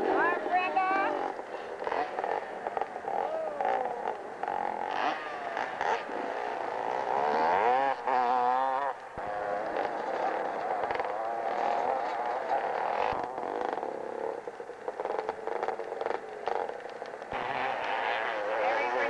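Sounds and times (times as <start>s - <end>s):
motorcycle engine revving hard: 0.0s - 19.0s.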